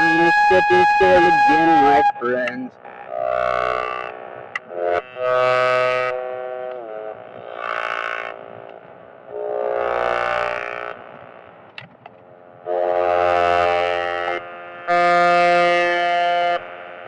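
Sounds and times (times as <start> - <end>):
synthesizer chords: 0.0 - 2.7.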